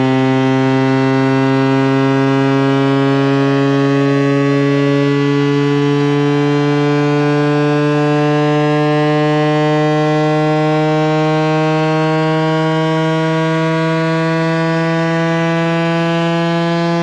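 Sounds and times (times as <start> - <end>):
low electronic buzz rising in pitch: 0.0 - 17.0.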